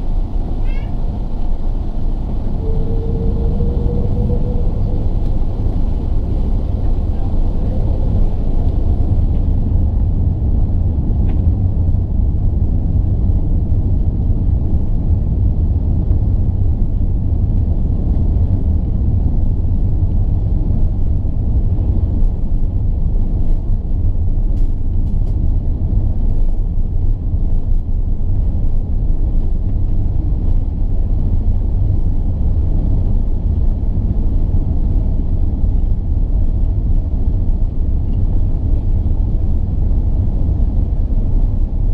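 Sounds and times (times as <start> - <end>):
jet engine cabin rumble: 0.0 - 41.9.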